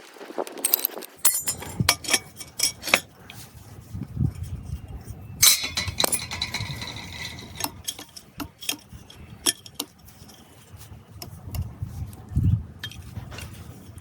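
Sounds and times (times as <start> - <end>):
small hard objects clinking: 0.5 - 3.1, 5.4 - 10.6.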